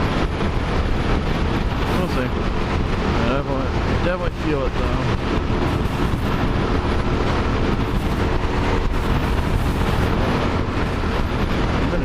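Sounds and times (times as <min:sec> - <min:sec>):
motorcycle engine running: 0:00.0 - 0:12.0
wind buffeting helmet microphone: 0:00.0 - 0:12.0.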